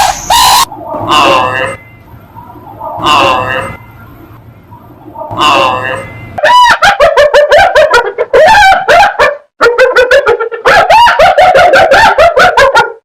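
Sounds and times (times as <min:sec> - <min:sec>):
dog yapping: 0:06.4 - 0:13.0.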